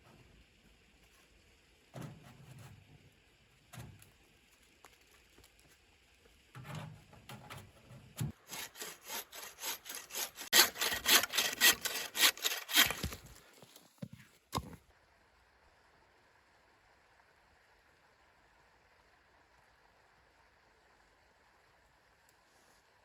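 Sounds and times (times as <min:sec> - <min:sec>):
hand saw cutting wood: 0:08.2 - 0:13.4.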